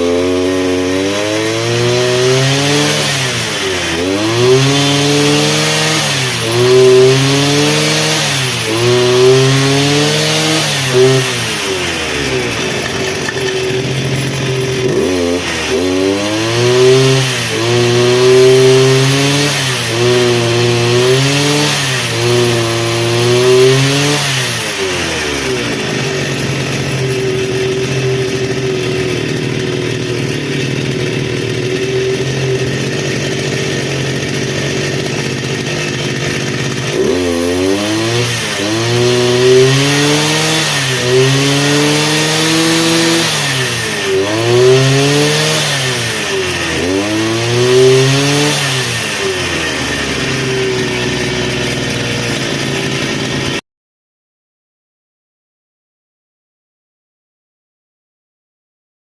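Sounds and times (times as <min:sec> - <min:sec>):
brush cutter engine revving and idling: 0:00.0 - 0:53.6.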